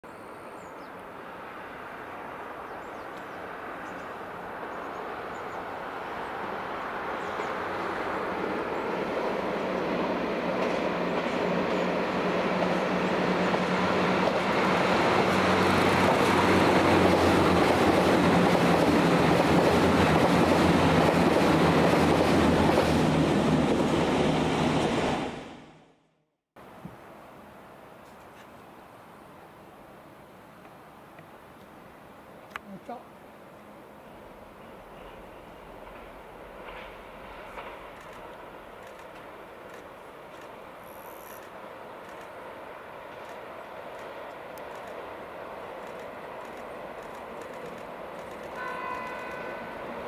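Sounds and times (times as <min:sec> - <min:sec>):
rail and wheel noise: 0:00.0 - 0:50.0
diesel train engines droning: 0:01.2 - 0:25.0.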